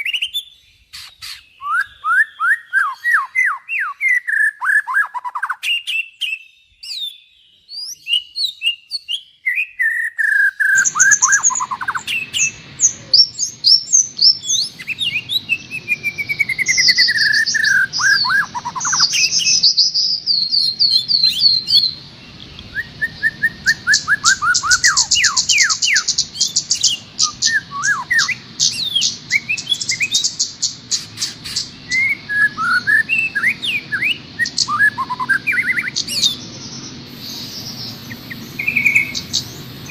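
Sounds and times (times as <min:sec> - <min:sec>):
songbirds singing: 0:00.0 - 0:39.9
steady background hiss: 0:10.8 - 0:39.9.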